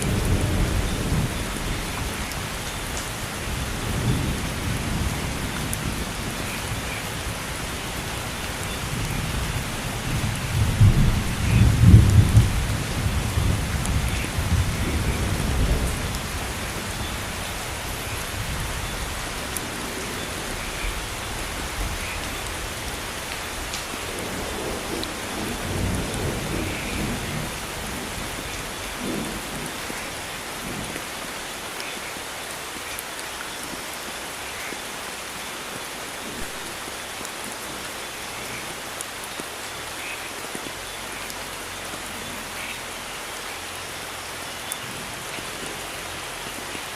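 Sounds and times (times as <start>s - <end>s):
thunder rumbling: 0.0s - 31.1s
heavy rain: 0.0s - 46.9s.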